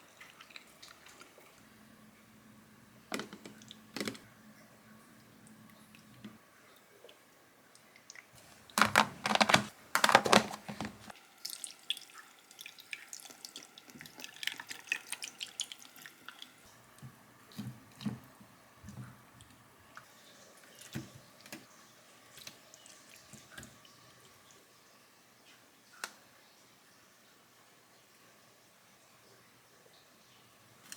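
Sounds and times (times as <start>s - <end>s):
kitchen tap running: 8.4s - 11.6s.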